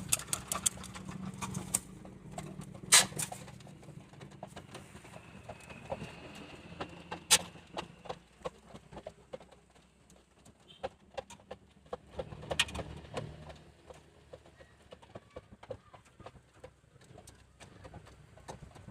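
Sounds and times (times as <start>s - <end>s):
beaks pecking at grain: 0.0s - 3.1s.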